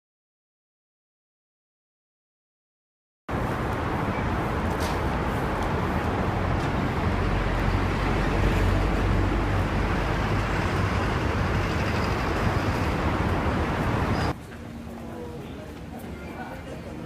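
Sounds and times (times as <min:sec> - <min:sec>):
motor vehicles passing rumble: 0:03.3 - 0:14.4.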